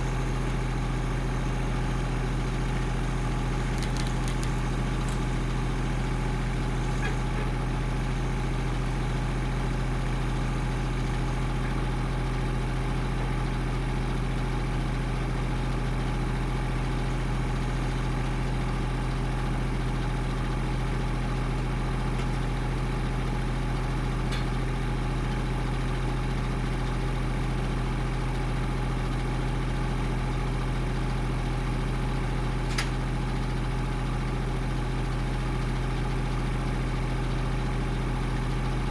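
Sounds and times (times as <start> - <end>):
engine idling: 0.0 - 38.9
sharp click: 32.7 - 33.0.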